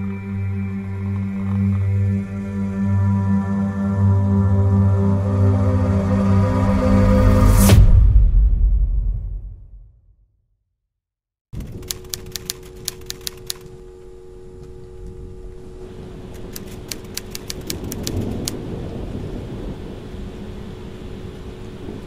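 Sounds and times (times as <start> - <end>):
low rumble and hum: 0.0 - 9.9, 11.6 - 22.0
typewriter key clacks: 11.6 - 13.7, 16.4 - 18.6.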